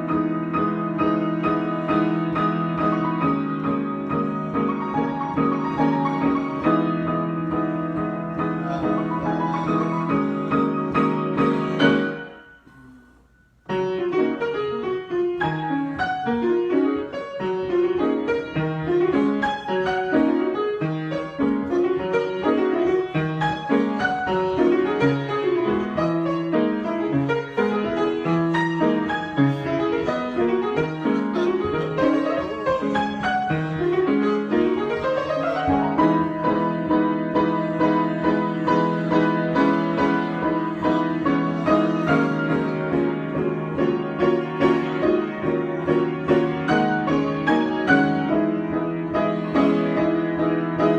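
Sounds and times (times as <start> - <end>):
piano improvisation: 0.0 - 50.9.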